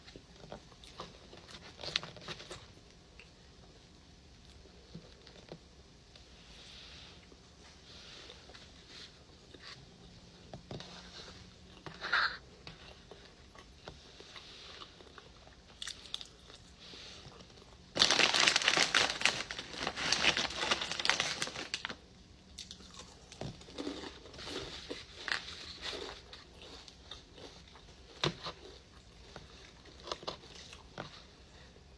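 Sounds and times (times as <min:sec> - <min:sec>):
packaging crinkling: 0:17.9 - 0:22.0.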